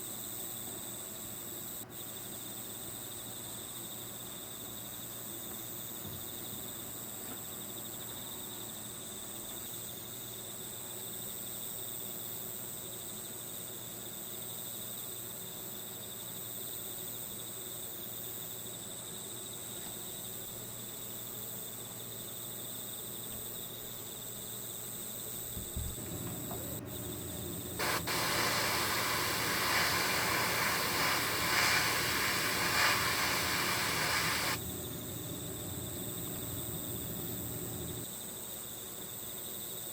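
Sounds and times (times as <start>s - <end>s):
crickets chirring: 25.5s - 38.7s
loud steady hiss: 26.0s - 38.1s.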